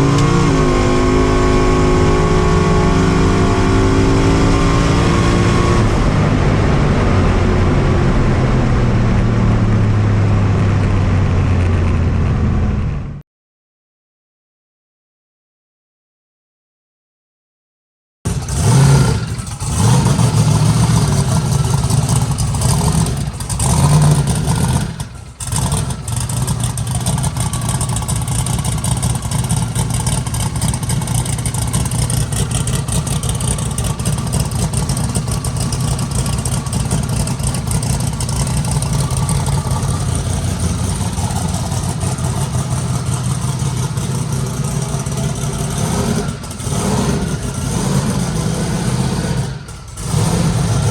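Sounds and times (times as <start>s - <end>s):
car engine starting and revving: 0.0s - 13.2s, 18.3s - 50.9s.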